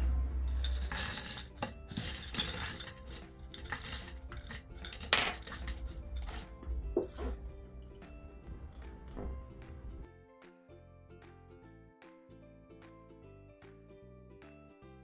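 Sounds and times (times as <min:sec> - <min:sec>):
hard objects clinking and scraping: 0:00.0 - 0:09.9
faint background music: 0:00.0 - 0:15.0.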